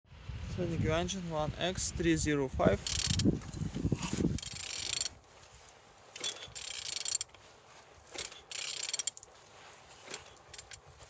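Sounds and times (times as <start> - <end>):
ratchet wrench clicking: 2.8 - 3.3, 4.3 - 5.2, 6.2 - 7.3, 8.2 - 9.3, 10.1 - 10.8.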